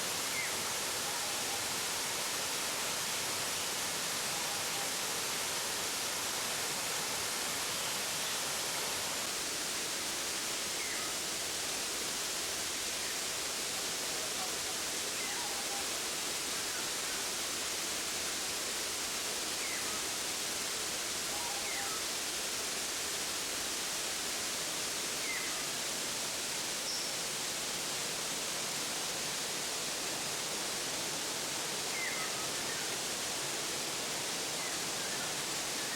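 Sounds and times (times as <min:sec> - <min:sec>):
faint bird chirps: 0:26.8 - 0:27.2.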